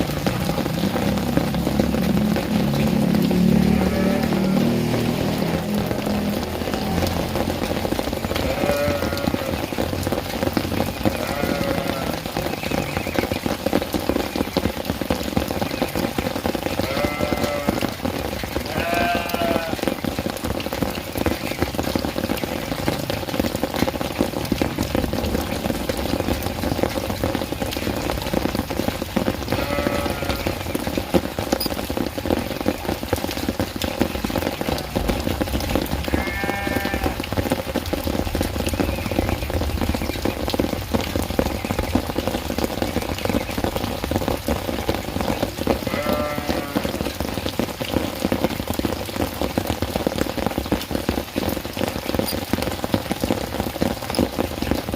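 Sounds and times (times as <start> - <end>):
steady rain: 0.0 - 54.9
goat bleating: 3.7 - 4.5, 8.4 - 9.6, 11.2 - 12.2, 16.8 - 17.9, 18.7 - 19.8, 29.5 - 30.5, 36.1 - 37.2, 45.9 - 47.0.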